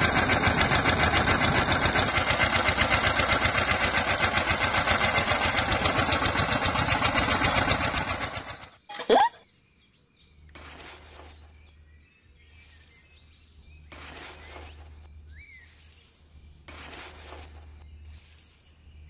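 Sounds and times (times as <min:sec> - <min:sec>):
bird chirp: 0:07.3 - 0:19.0.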